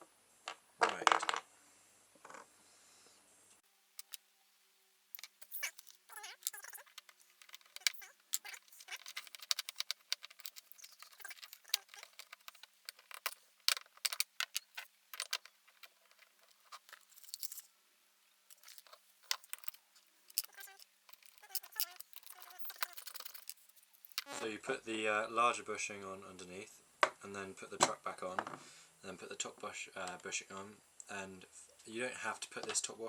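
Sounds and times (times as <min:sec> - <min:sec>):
skateboard parts clicking and rustling: 0:04.0 - 0:04.2, 0:05.2 - 0:17.7, 0:18.5 - 0:24.3.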